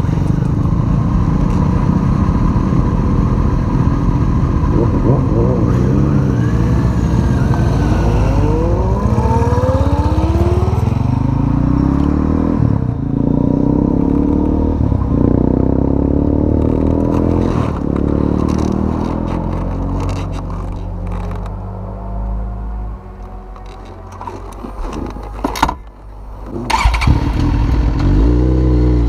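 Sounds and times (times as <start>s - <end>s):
motorcycle engine accelerating: 0.0s - 25.4s, 26.4s - 29.0s
engine crackling: 16.6s - 29.0s.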